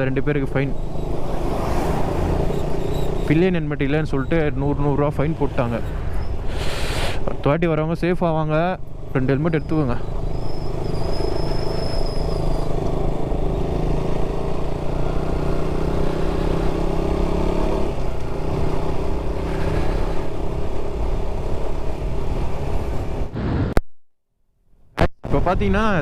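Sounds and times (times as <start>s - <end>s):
motorcycle engine running: 12.4s - 23.0s.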